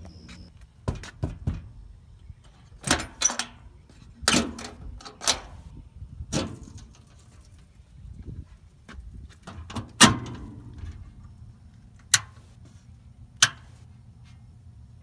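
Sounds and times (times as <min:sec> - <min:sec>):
irregular knocks and clunks: 0:00.8 - 0:01.7.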